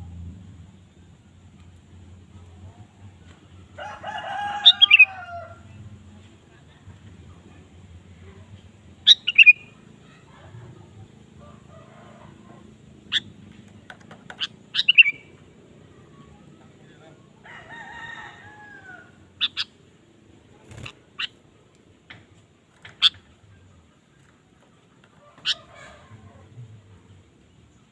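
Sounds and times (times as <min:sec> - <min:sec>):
crowing call: 0:03.8 - 0:05.7, 0:25.1 - 0:27.0.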